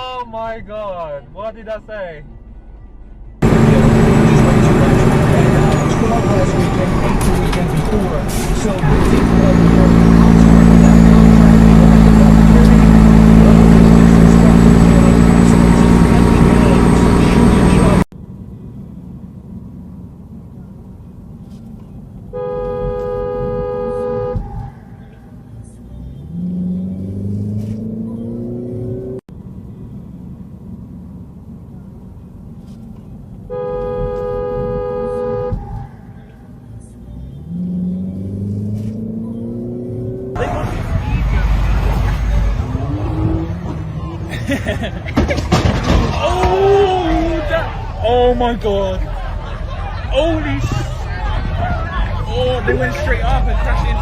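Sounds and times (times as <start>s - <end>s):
road noise: 0.0s - 54.0s
vehicle engine drone: 2.2s - 54.0s
car horn blast: 22.3s - 24.8s, 33.5s - 35.9s.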